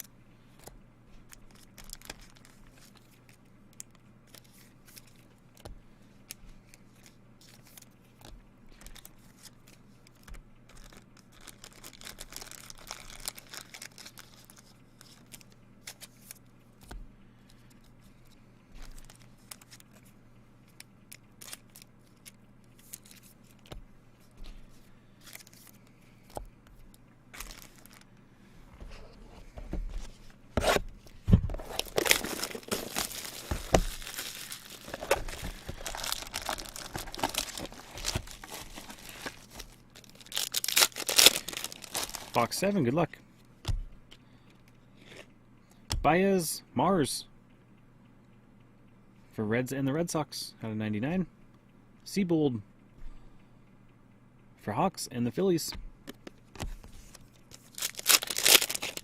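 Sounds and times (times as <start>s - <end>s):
faint steady hum: 0.0s - 59.0s
packaging tearing and crinkling: 1.3s - 3.2s, 8.8s - 16.4s, 27.4s - 28.1s, 31.5s - 42.8s, 57.1s - 59.0s.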